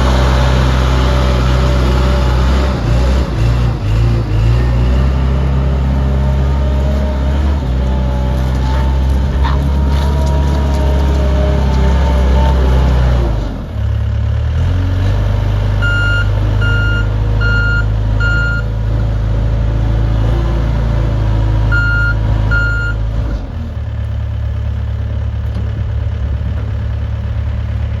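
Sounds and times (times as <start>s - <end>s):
skid steer loader engine running: 0.0s - 28.0s
reversing alarm beeps: 15.8s - 18.6s, 21.7s - 23.0s.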